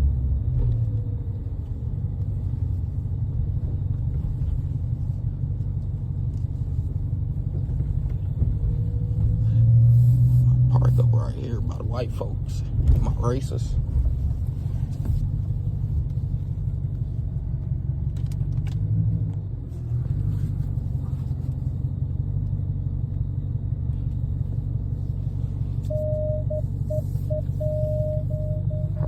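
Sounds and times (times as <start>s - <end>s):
car engine rumbling: 0.0s - 29.0s
steady high beeping tone: 25.9s - 29.0s.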